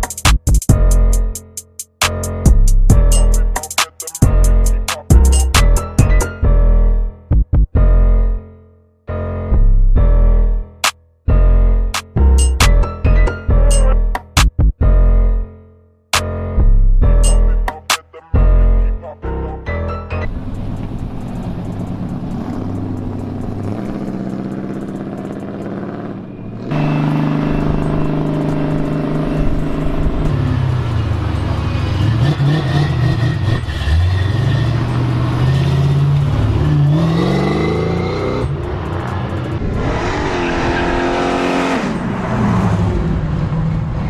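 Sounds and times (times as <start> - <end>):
car engines revving: 20.3 - 44.0.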